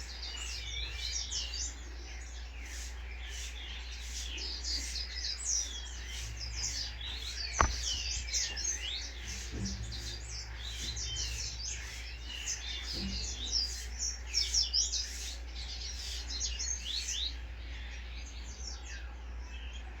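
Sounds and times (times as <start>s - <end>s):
songbirds chirping: 0.0s - 20.0s
steady low hum: 4.6s - 14.3s
sharp click: 7.6s - 8.2s.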